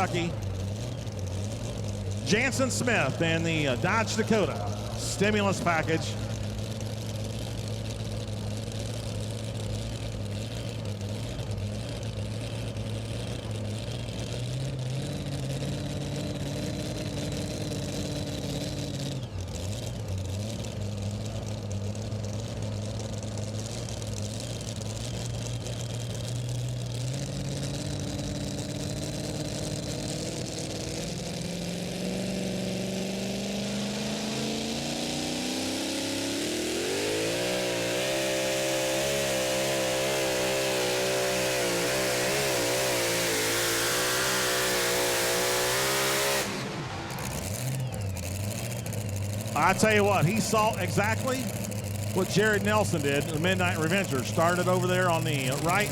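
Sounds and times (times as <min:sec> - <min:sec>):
truck engine running and revving: 0:00.0 - 0:55.9.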